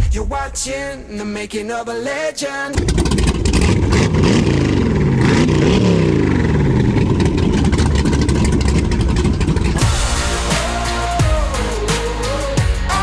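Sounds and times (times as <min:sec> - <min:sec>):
engine revving: 0:02.8 - 0:13.0.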